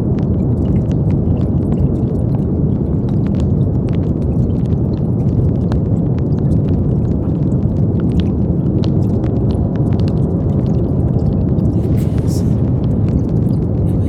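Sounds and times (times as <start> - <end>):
deep brown noise hiss: 11.6 - 14.0.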